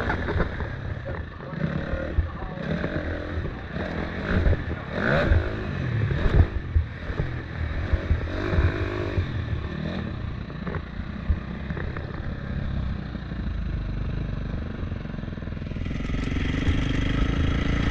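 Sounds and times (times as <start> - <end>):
dirt bike engine revving: 1.5 - 10.4, 15.8 - 17.9.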